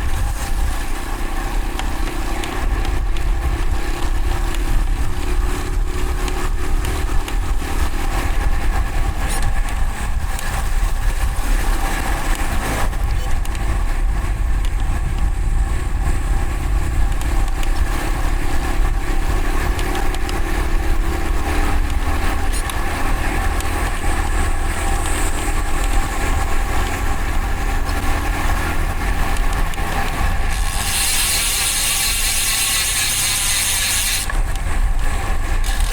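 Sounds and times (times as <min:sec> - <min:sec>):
wind rush: 0:00.0 - 0:30.5
motor traffic: 0:00.0 - 0:35.9.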